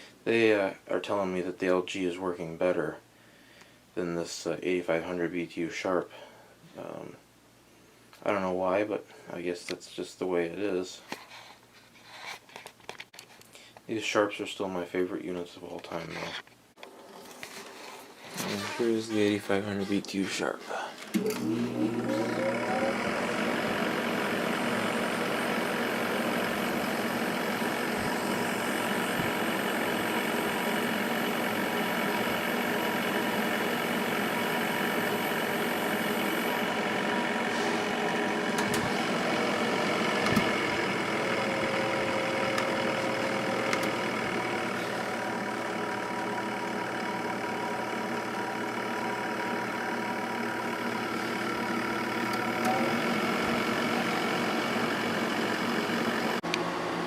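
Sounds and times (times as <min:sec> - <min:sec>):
air conditioner humming: 0:18.5 - 0:57.0.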